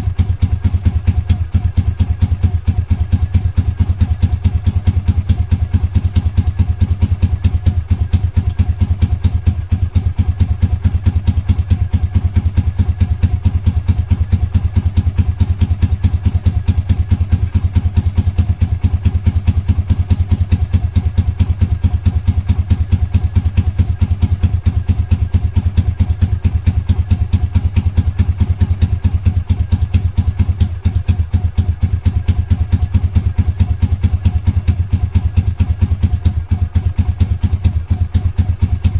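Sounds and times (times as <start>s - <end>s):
motorcycle engine running steadily: 0.0s - 38.9s.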